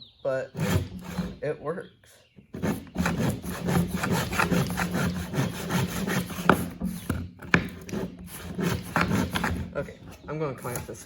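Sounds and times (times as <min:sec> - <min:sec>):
hand saw cutting wood: 0:00.5 - 0:01.5, 0:02.4 - 0:11.0
sharp knocks: 0:02.5 - 0:09.8.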